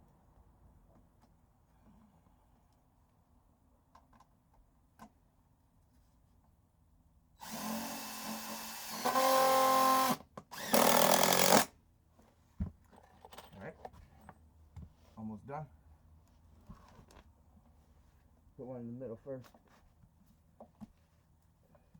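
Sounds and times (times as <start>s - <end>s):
power drill driving a screw: 7.4s - 11.7s.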